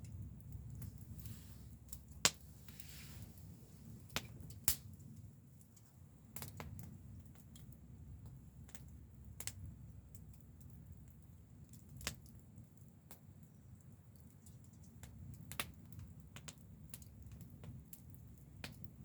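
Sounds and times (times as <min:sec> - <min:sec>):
low steady rumble: 0:00.0 - 0:11.6
wood fire crackling: 0:00.0 - 0:19.0.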